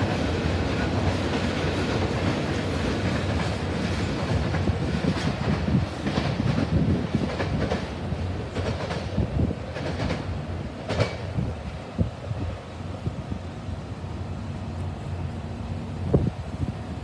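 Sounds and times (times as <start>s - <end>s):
train wheels clicking over rails: 0.0s - 13.6s
low train rumble: 0.0s - 17.0s.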